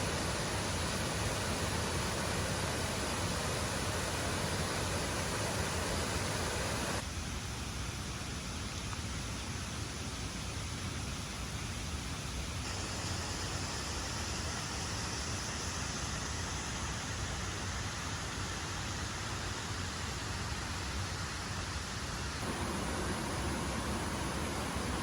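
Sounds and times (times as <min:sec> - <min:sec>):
waterfall rushing: 0:00.0 - 0:07.0, 0:22.4 - 0:25.0.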